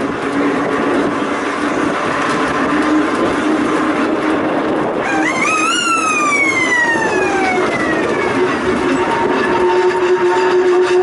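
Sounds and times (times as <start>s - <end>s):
electric railway car running: 0.0s - 11.0s
siren rising in pitch: 5.0s - 11.0s.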